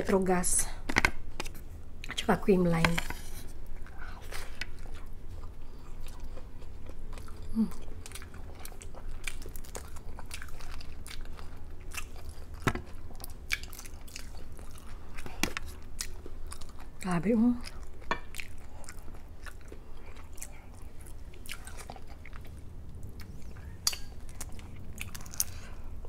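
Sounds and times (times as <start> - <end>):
wet chewing with crunches: 3.4 - 26.0
person humming mm: 7.4 - 7.9.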